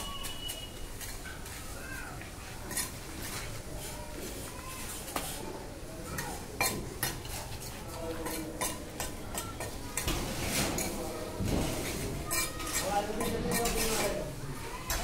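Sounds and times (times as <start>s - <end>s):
metal tool scraping building material: 11.8s - 14.2s.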